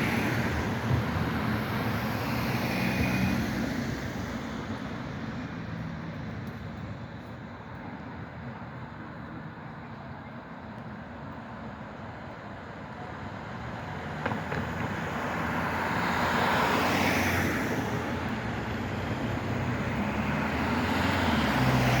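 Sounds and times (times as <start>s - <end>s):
tram passing on rails: 0.0s - 6.8s, 16.6s - 22.0s.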